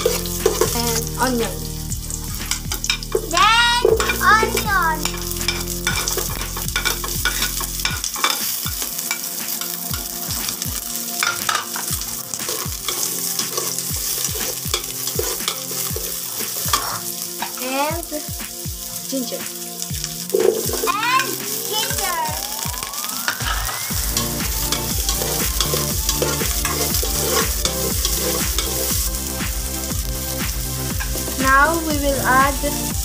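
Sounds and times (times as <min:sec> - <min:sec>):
garlic and onion sizzling in oil: 0:00.0 - 0:33.0
spatula scraping a pot: 0:12.5 - 0:17.1, 0:24.1 - 0:28.9.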